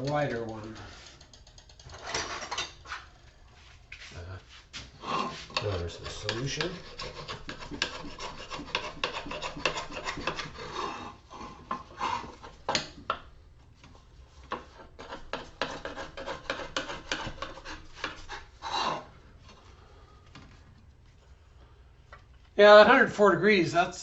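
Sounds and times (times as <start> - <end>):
hand scraper scraping metal: 5.0 - 12.9, 14.5 - 19.1.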